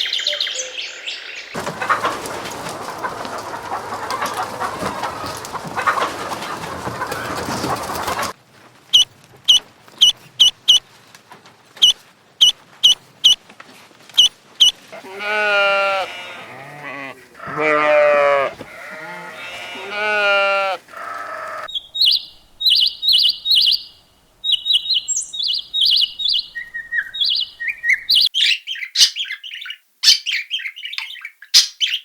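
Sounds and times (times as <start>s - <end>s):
chickens clucking: 1.6s - 8.4s, 14.2s - 28.3s
bird giving sharp chirps: 20.9s - 28.3s.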